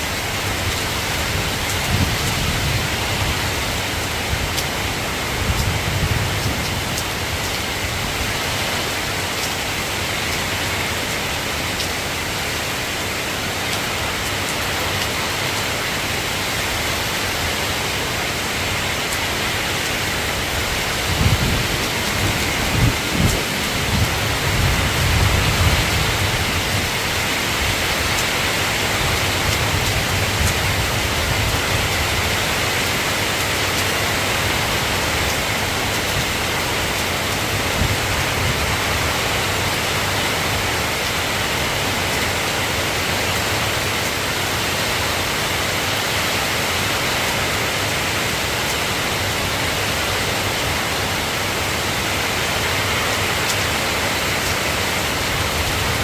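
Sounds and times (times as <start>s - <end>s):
rain falling: 0.0s - 56.0s
thunder rumble: 20.6s - 28.0s.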